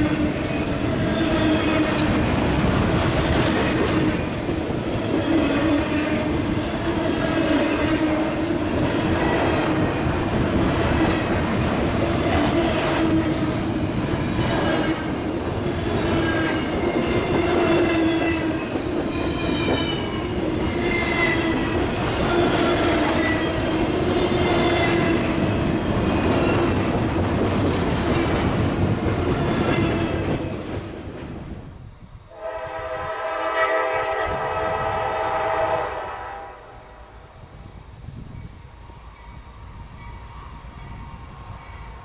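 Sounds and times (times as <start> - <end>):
locomotive horn blast: 32.3 - 37.0.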